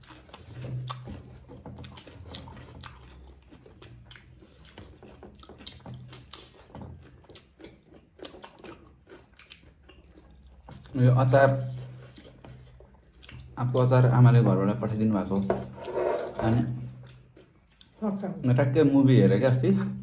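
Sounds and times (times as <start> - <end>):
wet chewing and lip smacks: 0.0 - 11.0, 11.7 - 13.6, 17.0 - 18.0.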